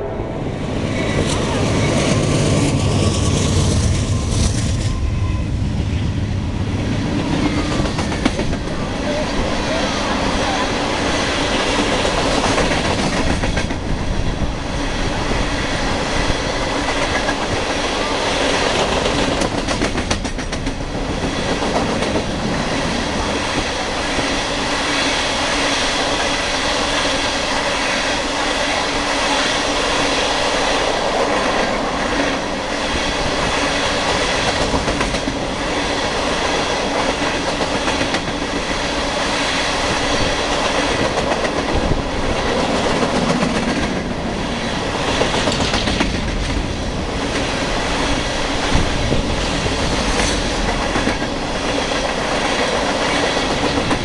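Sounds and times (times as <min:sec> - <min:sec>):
freight train wheels rumbling: 0:00.0 - 0:54.0
wheels clacking over rail joints: 0:45.0 - 0:47.6.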